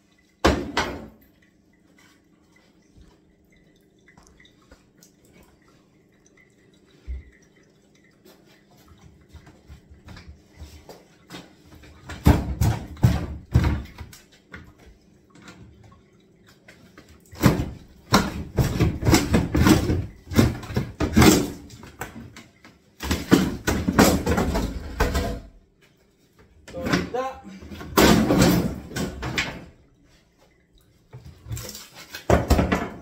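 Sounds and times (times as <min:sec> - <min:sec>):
wooden cupboards knocking and clattering: 0:11.6 - 0:14.1, 0:17.4 - 0:22.4, 0:23.0 - 0:25.6, 0:26.7 - 0:29.8, 0:32.2 - 0:33.0.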